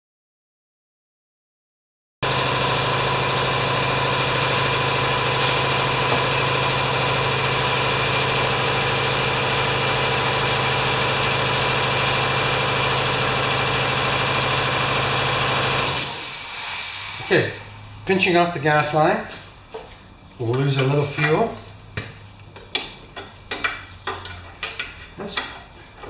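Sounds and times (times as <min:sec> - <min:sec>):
motor humming: 0:02.2 - 0:18.7.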